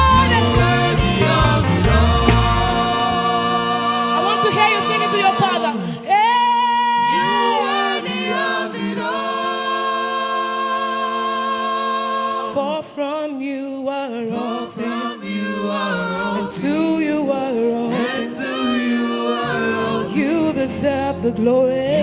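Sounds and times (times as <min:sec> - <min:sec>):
band bass accompaniment: 0:00.0 - 0:05.6
gospel worship singing: 0:00.0 - 0:22.0.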